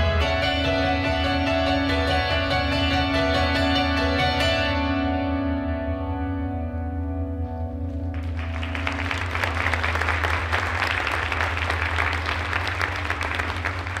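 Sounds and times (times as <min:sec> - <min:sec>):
audience applause: 0:08.1 - 0:14.0.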